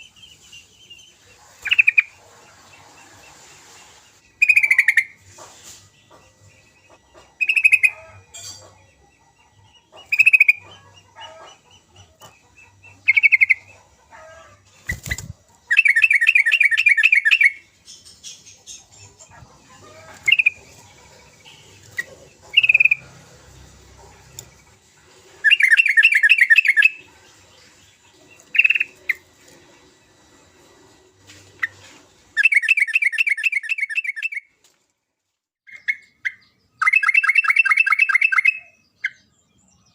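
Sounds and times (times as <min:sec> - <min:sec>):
bird fast chattering phrases: 0:14.8 - 0:23.1.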